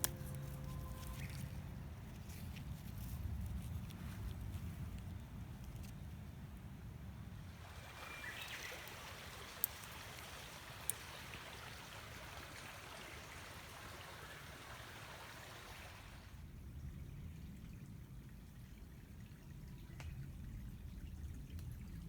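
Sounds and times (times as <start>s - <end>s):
running water hiss: 7.5s - 16.4s.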